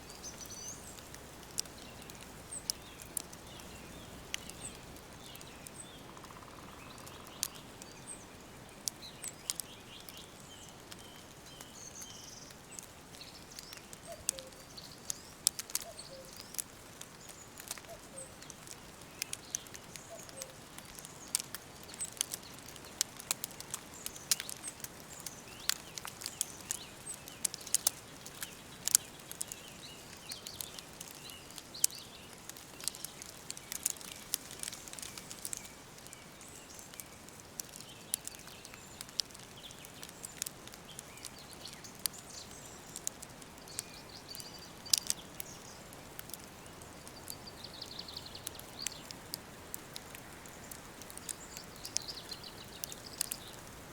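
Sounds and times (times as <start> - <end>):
steady soft hiss: 0.0 - 13.8
sharp crackling clicks: 0.1 - 8.0, 8.6 - 53.8.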